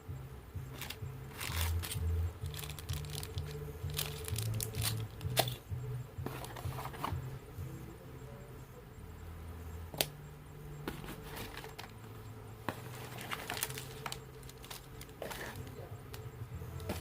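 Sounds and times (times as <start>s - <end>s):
background music with bass line: 0.0s - 17.0s
packaging crinkling and tearing: 0.8s - 5.5s, 13.1s - 15.6s.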